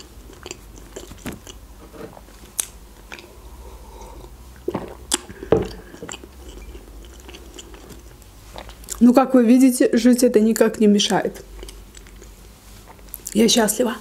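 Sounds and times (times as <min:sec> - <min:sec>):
croissant being chewed: 0:00.0 - 0:03.3, 0:04.1 - 0:09.0, 0:11.5 - 0:13.3.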